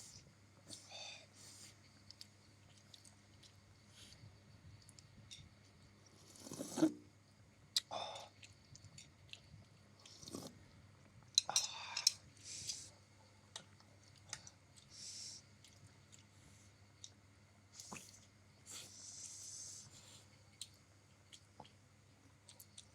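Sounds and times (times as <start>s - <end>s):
chewing noodles: 7.7s - 10.7s.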